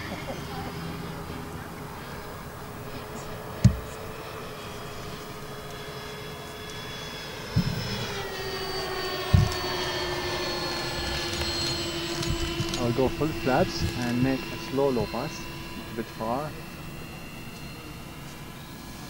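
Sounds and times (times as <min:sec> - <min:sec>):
electric ducted fans whining: 0:00.0 - 0:19.0
brief low thumps: 0:03.6 - 0:04.0, 0:09.3 - 0:09.6.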